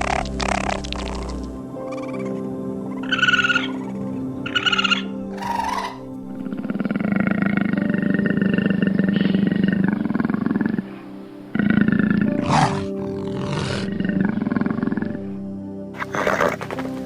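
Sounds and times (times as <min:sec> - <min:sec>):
soft background music: 0:00.0 - 0:17.0
big cat roaring and growling: 0:05.3 - 0:15.4.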